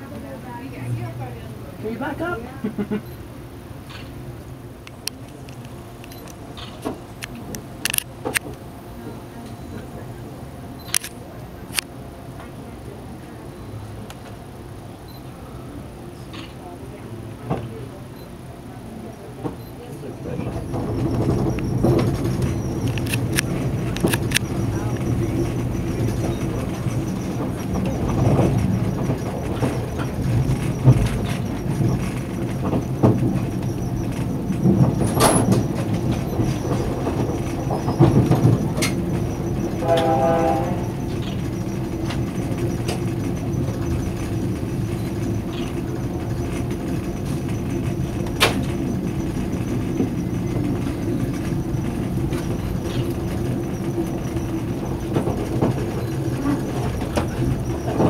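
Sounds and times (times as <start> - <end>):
rail car rumbling in motion: 0.0 - 58.0
knocks and clicks: 20.5 - 58.0.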